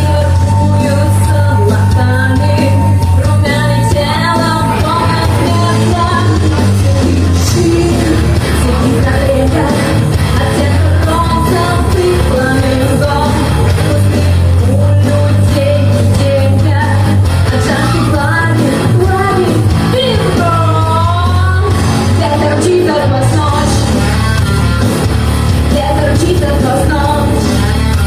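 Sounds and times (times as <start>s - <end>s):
bass line: 0.0s - 28.0s
rock band playing: 0.0s - 28.0s
woman singing rock song: 0.0s - 28.0s.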